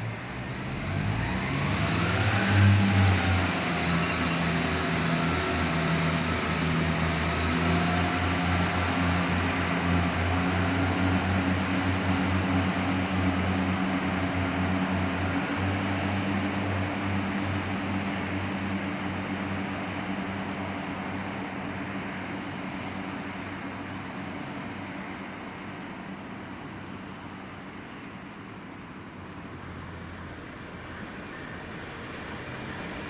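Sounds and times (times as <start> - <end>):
diesel train engine humming: 0.0 - 33.0.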